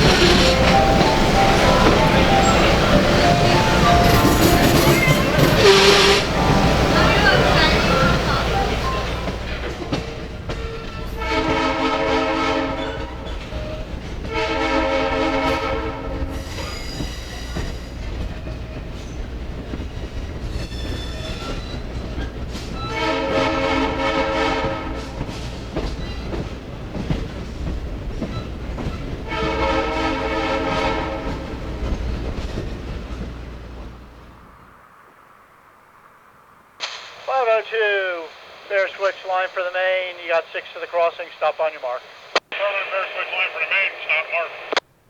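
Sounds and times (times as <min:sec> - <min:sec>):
locomotive air horn blasts: 0:00.0 - 0:09.7, 0:11.2 - 0:13.2, 0:14.3 - 0:16.4, 0:22.9 - 0:25.2, 0:29.3 - 0:31.6
moving train rumble: 0:00.0 - 0:45.0.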